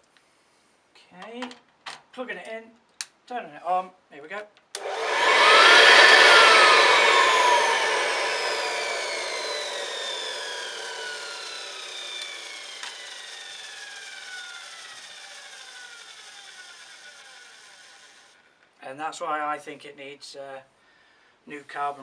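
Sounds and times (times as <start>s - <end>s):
rough scratchy motor noise: 4.8s - 14.8s
vacuum cleaner motor winding down: 4.8s - 18.3s.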